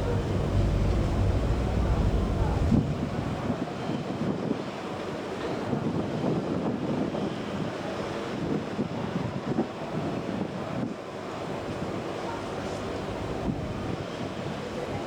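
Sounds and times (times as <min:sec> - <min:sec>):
water rushing and churning: 0:00.0 - 0:03.6, 0:12.5 - 0:14.0
wind buffeting microphone: 0:00.0 - 0:04.6, 0:12.9 - 0:14.5.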